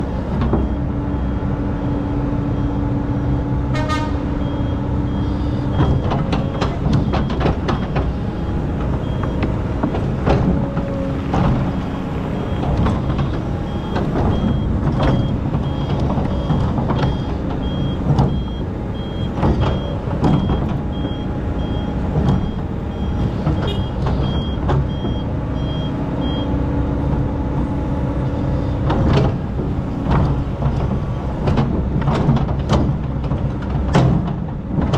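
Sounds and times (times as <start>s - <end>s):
diesel engine under load: 0.0s - 34.9s
reversing alarm beeping: 0.5s - 3.6s, 4.4s - 10.1s, 11.6s - 26.6s.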